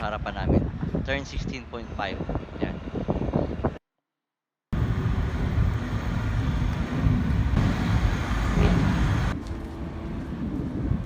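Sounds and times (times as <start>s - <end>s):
motorcycle engines rumbling: 4.8s - 11.0s.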